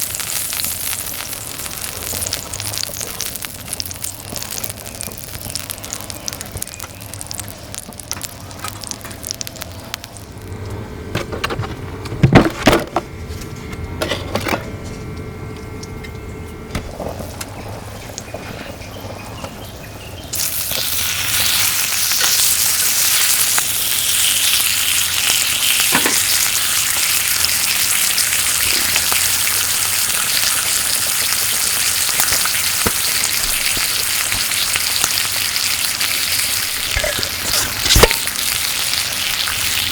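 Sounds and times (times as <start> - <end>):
meat sizzling in a hot pan: 0.0 - 10.2, 20.2 - 39.9.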